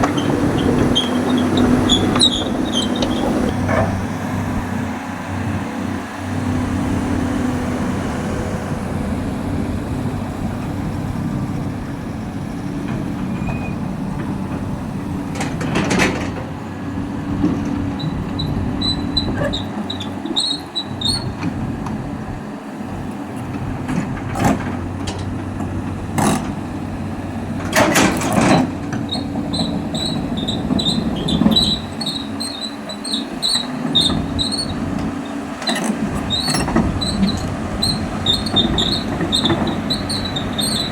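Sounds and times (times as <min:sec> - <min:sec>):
steel tracks squeaking: 0:00.0 - 0:09.5, 0:11.9 - 0:16.6, 0:17.6 - 0:21.6, 0:27.2 - 0:40.9
diesel excavator engine running: 0:00.0 - 0:40.9.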